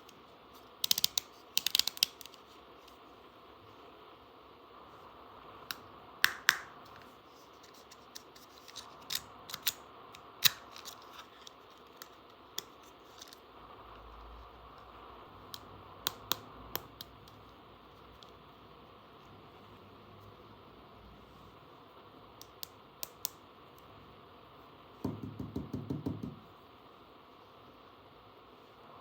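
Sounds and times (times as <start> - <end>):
plastic toy parts clicking: 0.8 - 2.4, 8.1 - 9.8, 10.4 - 13.4.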